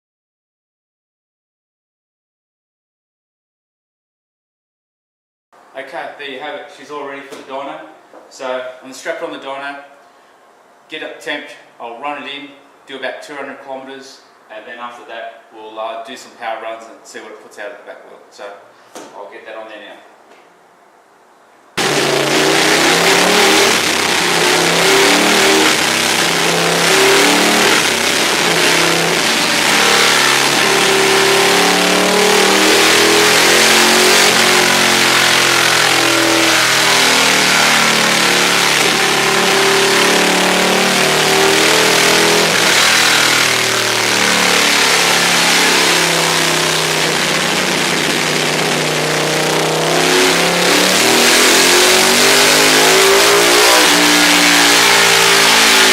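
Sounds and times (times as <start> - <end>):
motorcycle engine revving on dyno: 21.8 - 55.9.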